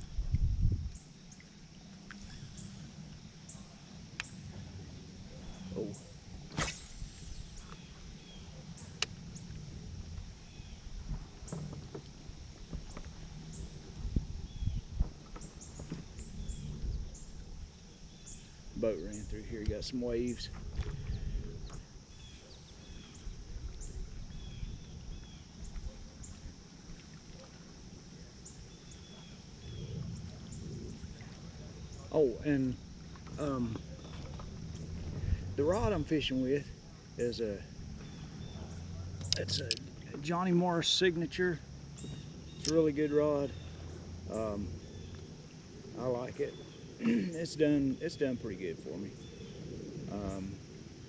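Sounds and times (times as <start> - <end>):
wind and water rumble: 0.0 - 51.0
birds chirping: 0.9 - 11.7, 37.2 - 50.5
brief swish: 6.5 - 7.7
sharp click: 6.5 - 7.8, 39.2 - 39.8, 42.6 - 42.8
water lapping against kayak: 20.5 - 32.1, 32.7 - 36.0.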